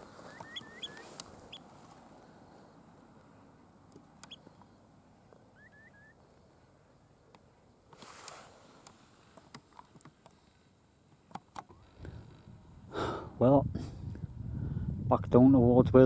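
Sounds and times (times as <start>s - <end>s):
faint rising bird chirps: 0.2s - 1.7s, 5.4s - 6.3s
brief rustle: 7.9s - 10.4s.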